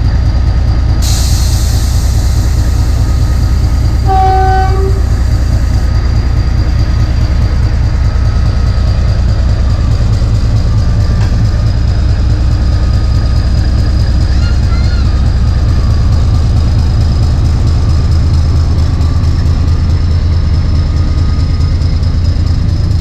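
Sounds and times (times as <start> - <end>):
train rumbling: 0.0 - 23.0
locomotive horn toot: 4.0 - 5.4.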